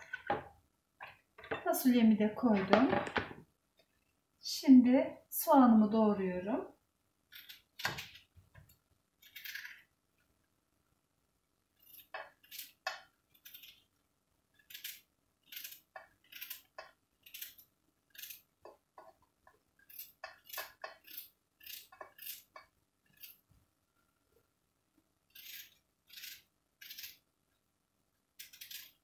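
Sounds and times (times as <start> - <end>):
knife cutting onion: 14.6 - 18.5, 19.8 - 23.4, 25.3 - 27.2.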